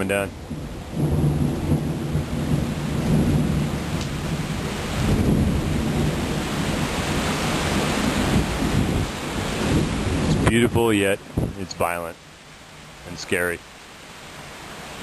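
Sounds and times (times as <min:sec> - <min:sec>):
heavy rain pouring: 0:00.0 - 0:15.0
low rumble of thunder: 0:00.3 - 0:11.6.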